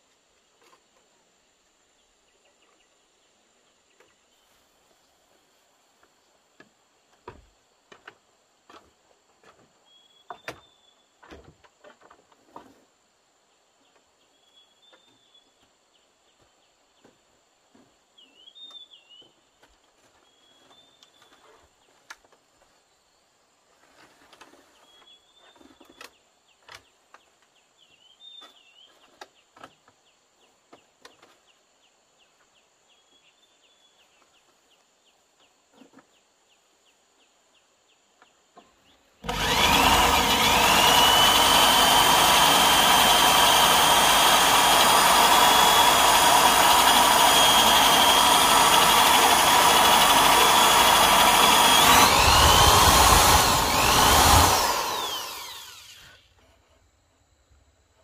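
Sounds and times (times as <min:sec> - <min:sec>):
electric power tool whining: 0:39.2 - 0:56.3.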